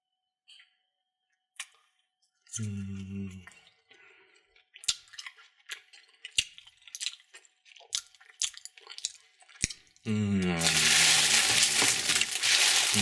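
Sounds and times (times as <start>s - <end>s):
plastic packaging crinkling: 10.6s - 13.0s.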